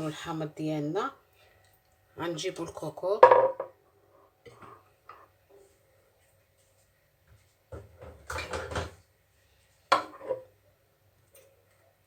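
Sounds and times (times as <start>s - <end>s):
metal pot scraping and rustling: 10.0s - 10.5s.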